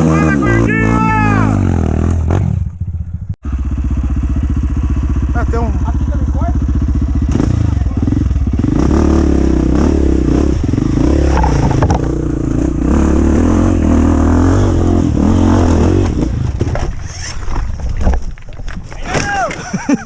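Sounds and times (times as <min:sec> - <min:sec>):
dirt bike engine revving: 0:00.0 - 0:16.6.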